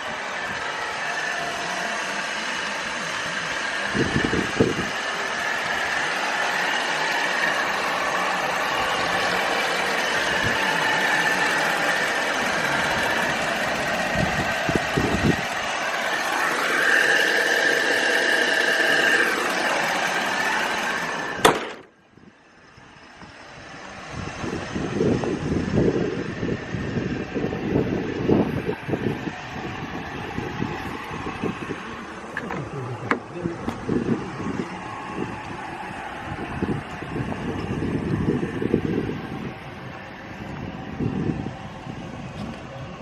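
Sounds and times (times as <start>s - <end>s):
truck engine running: 0.0s - 43.0s
wind buffeting microphone: 3.3s - 6.0s, 8.5s - 11.0s, 12.4s - 15.6s, 23.6s - 43.0s.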